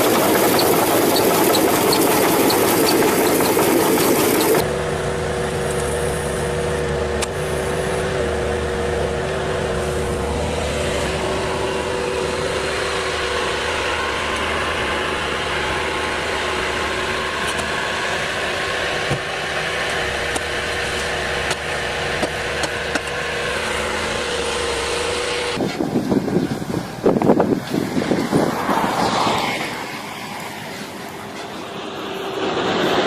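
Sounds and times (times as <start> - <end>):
machine engine humming: 0.0 - 33.0
wind on microphone: 25.6 - 29.8.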